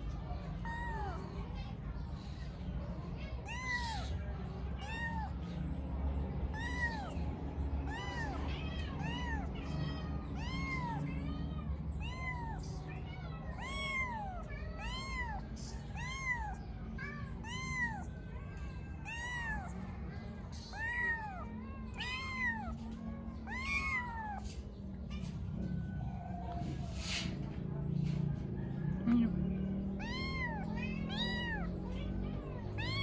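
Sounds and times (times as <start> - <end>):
kitten meowing: 0.6 - 1.3, 3.4 - 4.2, 4.8 - 5.4, 6.5 - 7.2, 7.9 - 8.4, 9.0 - 9.5, 10.4 - 11.0, 12.0 - 12.7, 13.5 - 16.7, 17.4 - 18.1, 19.0 - 19.8, 20.7 - 22.8, 23.4 - 24.5, 30.0 - 31.7, 32.8 - 33.0.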